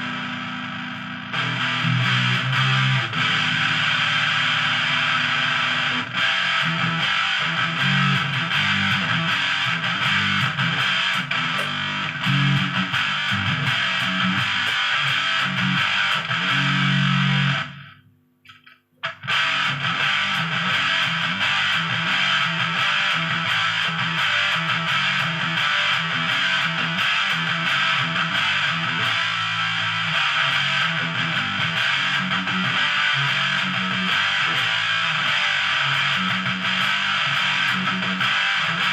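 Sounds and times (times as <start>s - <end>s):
distorted electric guitar riffing: 0.0s - 38.9s.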